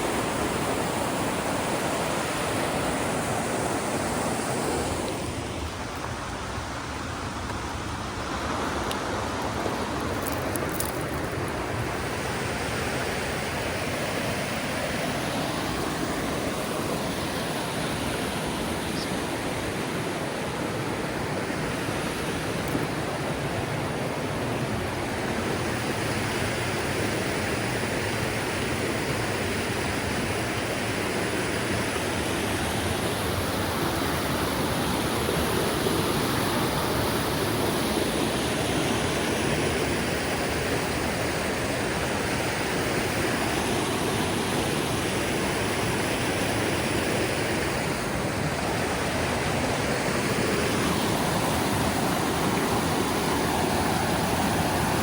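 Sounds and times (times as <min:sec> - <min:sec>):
whitewater rushing over rocks: 0:00.0 - 0:55.0.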